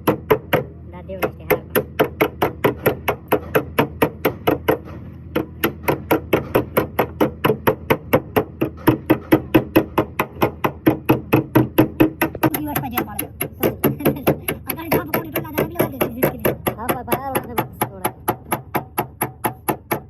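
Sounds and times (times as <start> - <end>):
hammer tapping sheet metal: 1.2 - 20.0.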